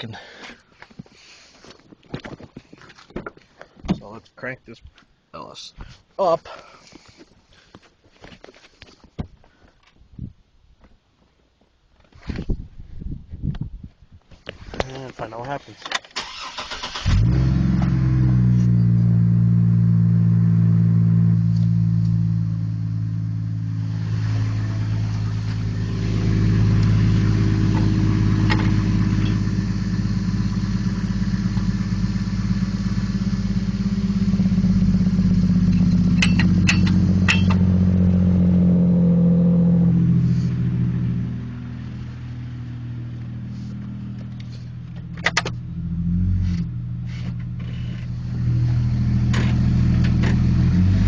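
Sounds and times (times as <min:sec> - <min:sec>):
car engine running: 0:16.5 - 0:51.0.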